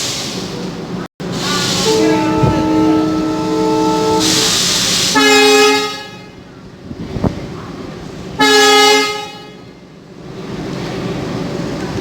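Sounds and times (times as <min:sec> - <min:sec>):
air hiss: 0:01.4 - 0:05.3
train horn blasts: 0:01.4 - 0:06.4, 0:08.4 - 0:09.6.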